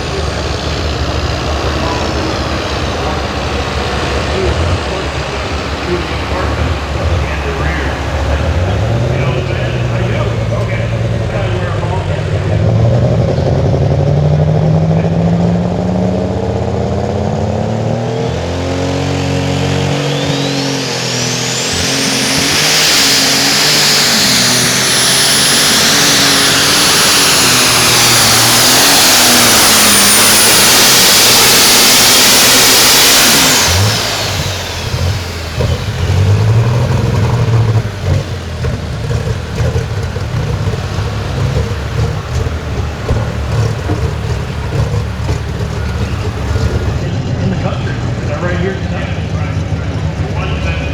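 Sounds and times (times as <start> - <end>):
diesel engine at full throttle: 0.0 - 50.9
high turbo whistle: 19.0 - 47.1.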